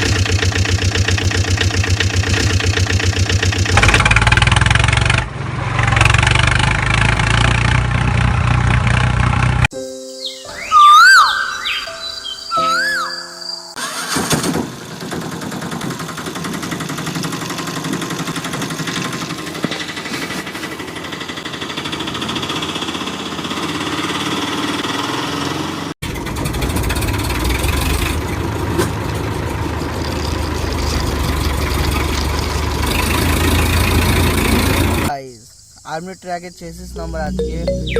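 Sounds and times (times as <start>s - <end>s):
deeper heavier engine: 0.0s - 9.7s, 14.4s - 35.1s
vehicle engine running: 0.0s - 9.7s, 14.7s - 35.1s.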